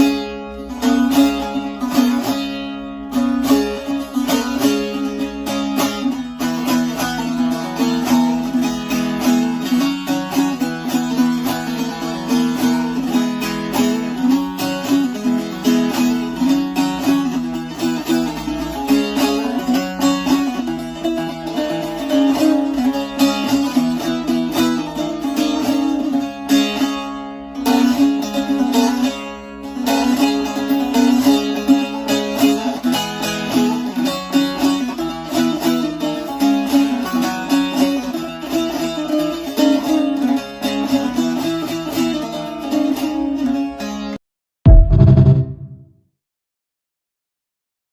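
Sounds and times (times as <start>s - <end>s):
plucked lute notes: 0.0s - 45.8s.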